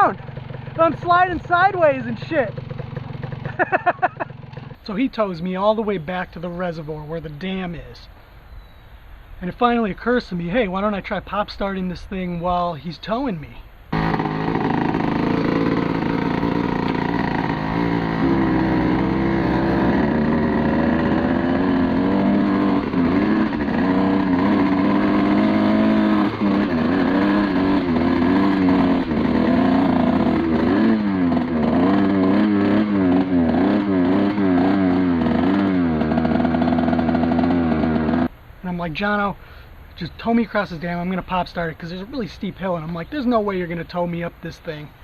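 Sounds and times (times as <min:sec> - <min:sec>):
two-stroke engine revving: 0:00.0 - 0:04.8, 0:13.9 - 0:38.3.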